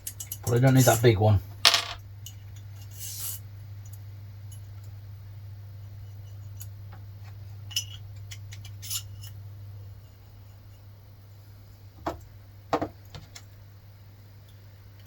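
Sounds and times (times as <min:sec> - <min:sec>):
small metal parts clinking: 0:00.0 - 0:01.1, 0:01.7 - 0:02.0, 0:07.7 - 0:09.4
steady low hum: 0:00.0 - 0:12.7.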